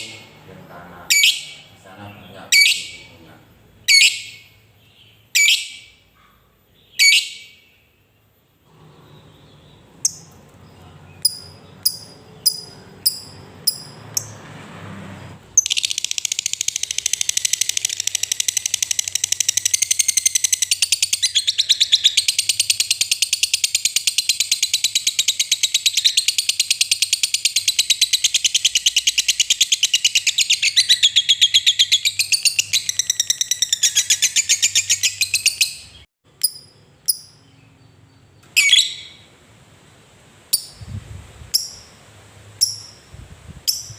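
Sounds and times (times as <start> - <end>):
lovebird chattering trill: 1.1 - 1.7, 2.4 - 3.2, 3.8 - 6.0, 6.8 - 7.6, 11.2 - 14.3, 15.6 - 37.6, 38.6 - 39.3, 41.5 - 42.0, 42.6 - 43.9
lovebird ticking calls: 11.2 - 14.3, 15.6 - 37.5, 41.5 - 41.9, 42.6 - 43.1, 43.7 - 43.9.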